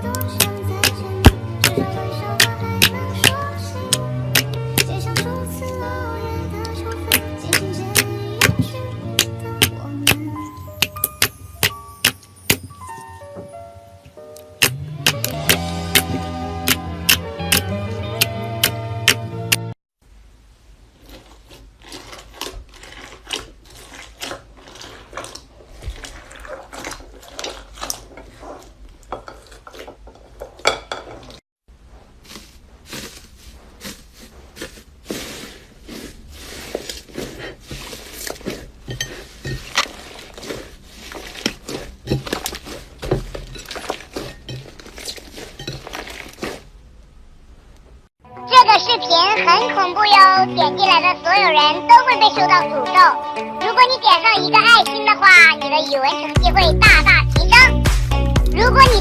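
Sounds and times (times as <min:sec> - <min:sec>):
slime crackling and popping: 0:00.1 - 0:05.4, 0:06.6 - 0:12.6, 0:21.0 - 0:29.0, 0:32.3 - 0:46.8.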